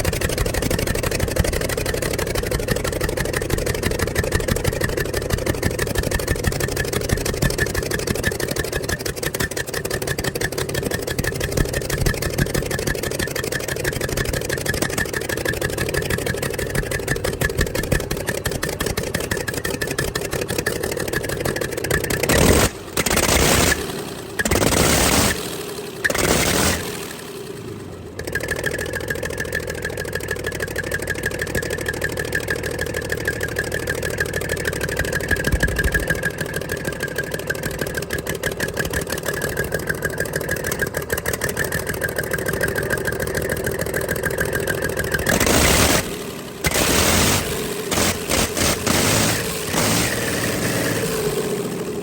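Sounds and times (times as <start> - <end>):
diesel engine running: 0.0 - 52.0
loud engine bursts: 22.2 - 28.8, 44.1 - 52.0.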